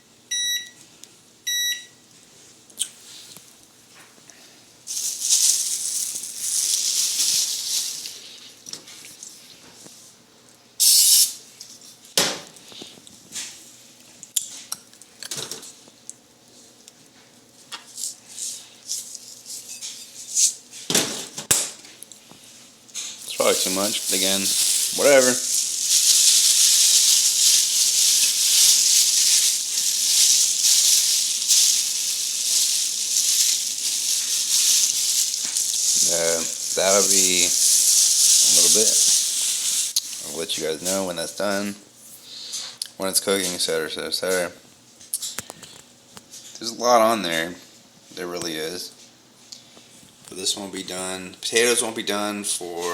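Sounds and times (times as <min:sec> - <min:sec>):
loud hiss: 0:10.8 - 0:11.4, 0:23.2 - 0:40.6
steak sizzling in a pan: 0:23.2 - 0:40.4.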